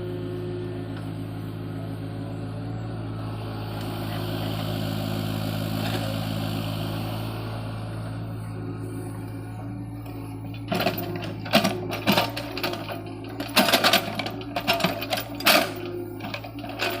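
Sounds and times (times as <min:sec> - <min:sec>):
excavator diesel engine running: 0:00.0 - 0:17.0
clattering and scraping: 0:10.5 - 0:17.0.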